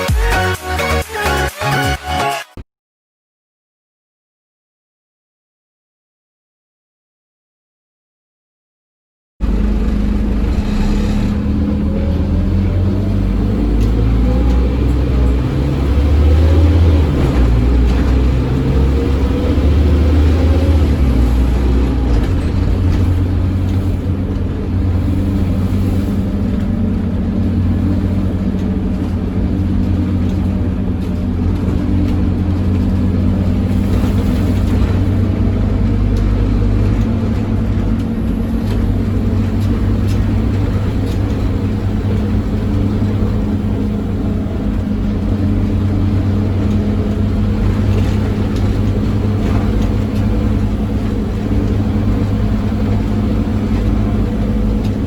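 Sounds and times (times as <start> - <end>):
bus diesel engine droning: 9.4 - 55.0.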